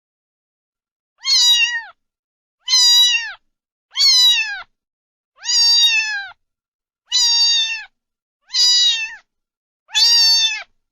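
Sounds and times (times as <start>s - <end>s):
cat meowing: 1.2s - 2.0s, 2.6s - 4.7s, 5.4s - 6.4s, 7.1s - 9.3s, 9.9s - 10.8s.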